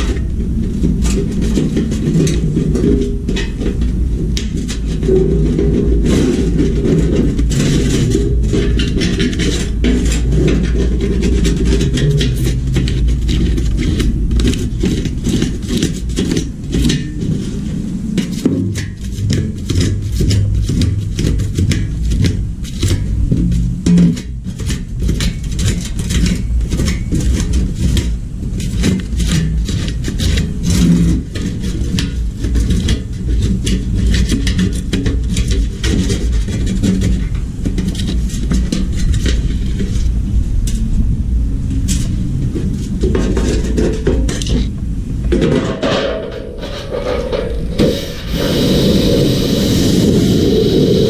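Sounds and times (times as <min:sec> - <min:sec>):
tools scraping and clattering: 0:00.0 - 0:40.8, 0:41.8 - 0:49.1
steady low rumble: 0:00.0 - 0:51.0
loud hiss: 0:46.6 - 0:51.0.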